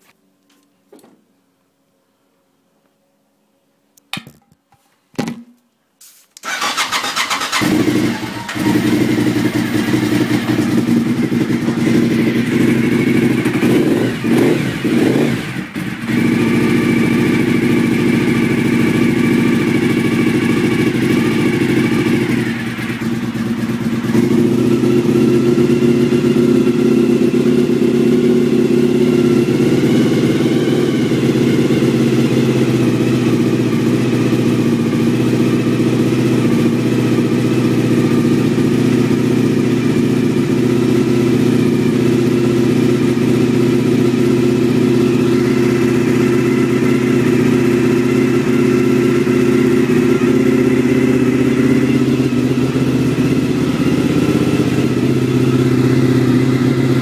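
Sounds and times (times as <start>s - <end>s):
motorcycle engine cranking: 6.4s - 12.9s
motorcycle engine idling: 6.4s - 57.0s.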